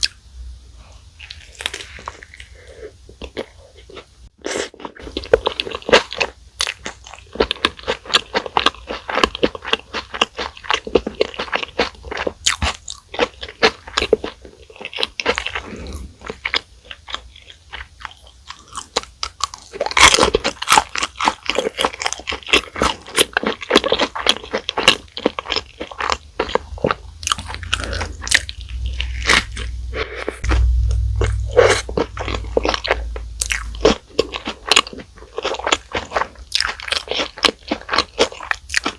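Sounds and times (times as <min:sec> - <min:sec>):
crunching and chewing food: 0:01.2 - 0:38.9
low rumble: 0:26.4 - 0:34.3.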